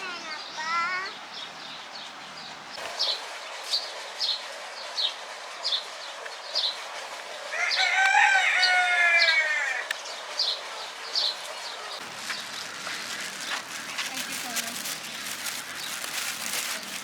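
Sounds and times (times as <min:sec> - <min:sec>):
rooster crowing: 0:07.5 - 0:09.9.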